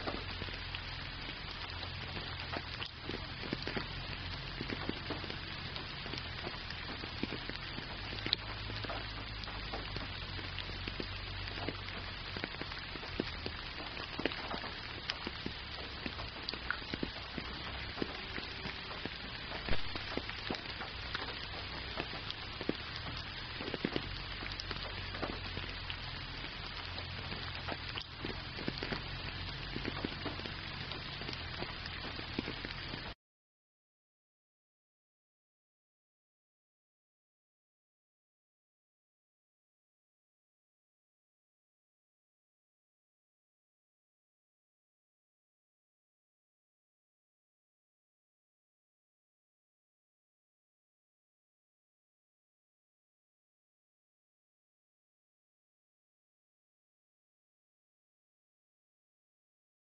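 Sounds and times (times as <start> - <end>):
rain falling: 0.0 - 33.2.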